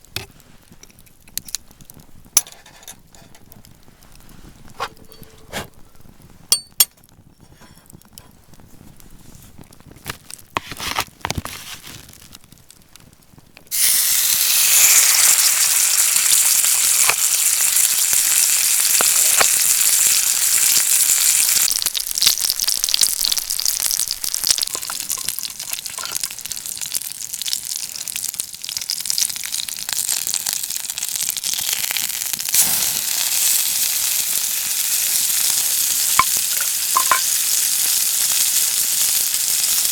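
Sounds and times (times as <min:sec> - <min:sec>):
cookware clinking: 0:05.0 - 0:05.6, 0:06.6 - 0:06.9, 0:36.2 - 0:37.3
food sizzling in a hot pan: 0:13.7 - 0:39.9.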